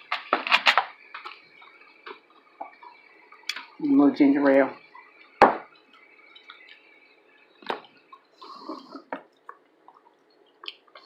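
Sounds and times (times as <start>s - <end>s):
cup knocking: 5.4s - 5.7s.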